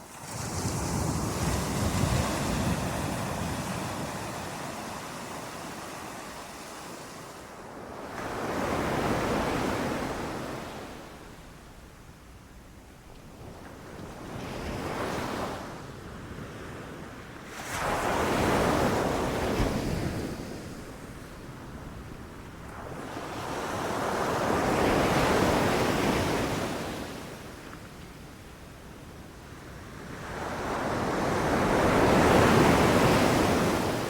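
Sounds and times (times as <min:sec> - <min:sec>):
ocean waves breaking: 0:00.0 - 0:11.4, 0:30.2 - 0:34.0.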